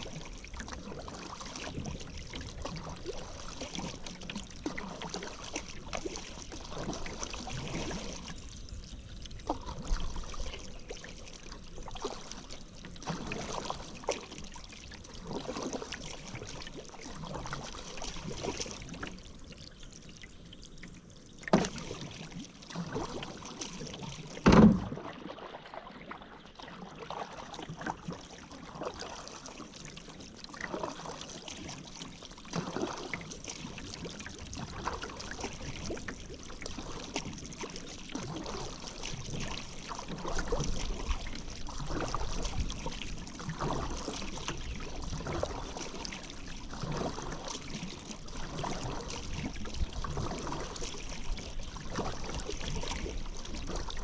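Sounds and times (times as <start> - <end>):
paddle splashing in water: 0.0 - 54.0
sharp knocks: 24.4 - 24.9.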